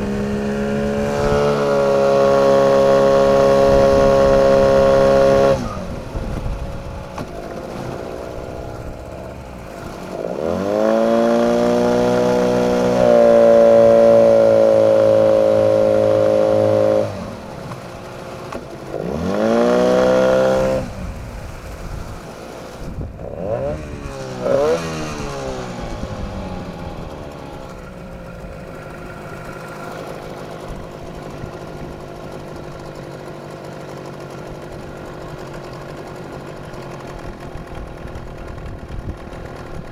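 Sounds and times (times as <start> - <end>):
small motor revving: 0.0 - 17.6, 18.9 - 21.2, 22.0 - 30.4.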